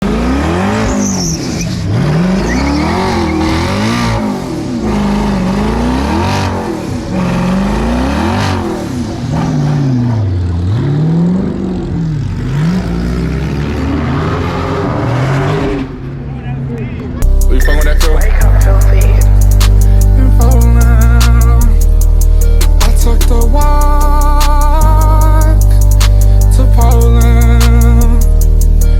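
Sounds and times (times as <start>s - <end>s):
car engine revving: 0.0s - 28.9s.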